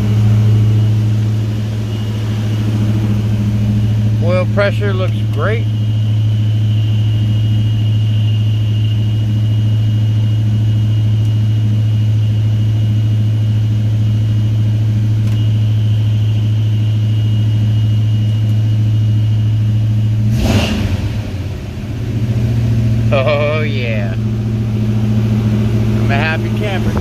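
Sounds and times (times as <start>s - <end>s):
faint high whine: 0.0s - 20.2s, 22.8s - 27.0s
engine running at fast idle: 0.0s - 27.0s.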